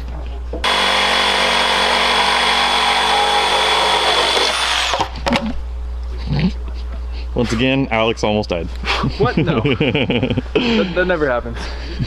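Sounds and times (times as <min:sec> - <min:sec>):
reciprocating saw cutting metal: 0:00.6 - 0:05.1.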